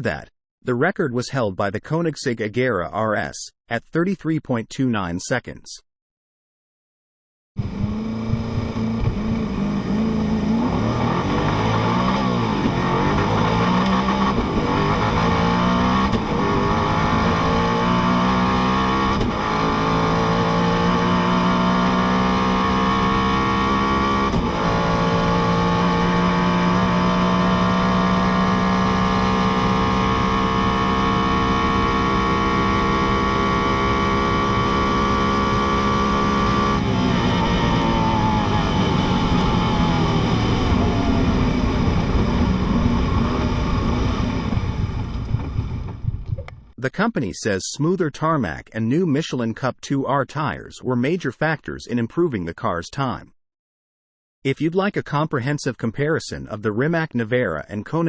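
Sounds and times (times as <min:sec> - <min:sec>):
sports car engine accelerating: 0:07.6 - 0:46.1.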